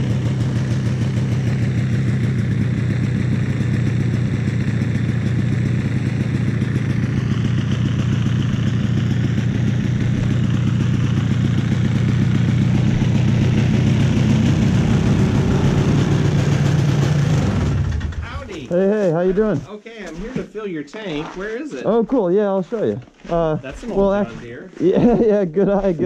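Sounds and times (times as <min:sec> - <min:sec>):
snowmobile engine idling: 0:00.0 - 0:26.0.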